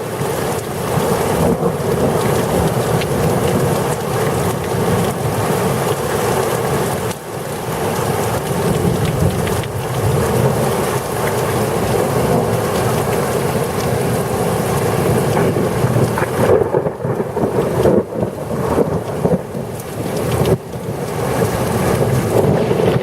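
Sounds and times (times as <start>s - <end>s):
heavy rain rushing: 0.0s - 23.0s
low thunder rumble: 13.8s - 23.0s.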